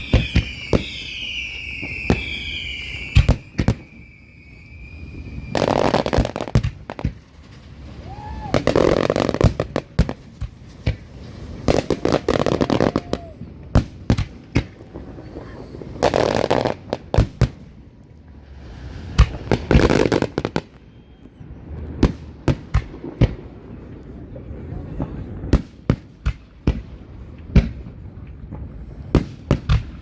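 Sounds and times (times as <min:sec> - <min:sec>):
fireworks bangs: 0:00.0 - 0:30.0
rapid firework pops: 0:05.6 - 0:15.0, 0:25.6 - 0:30.0.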